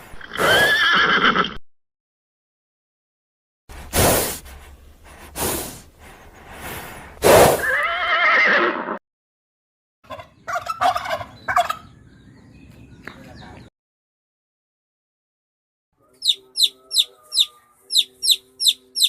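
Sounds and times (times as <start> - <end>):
horse blowing: 0.1 - 1.6, 3.7 - 9.0
horse whinnying: 0.1 - 1.6, 7.5 - 9.0
short pitched calls: 16.2 - 19.0.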